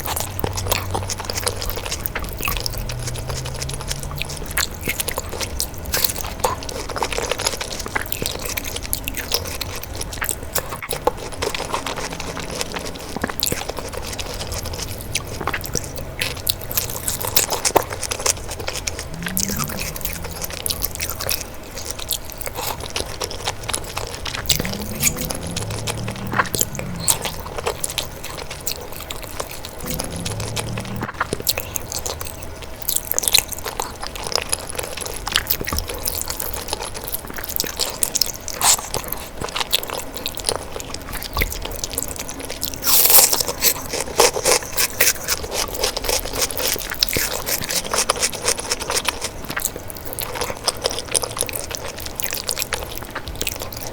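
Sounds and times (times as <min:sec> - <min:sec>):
crunchy bites: 0:00.0 - 0:53.9
wet chewing: 0:00.0 - 0:53.9
mouth clicks: 0:18.6 - 0:32.0.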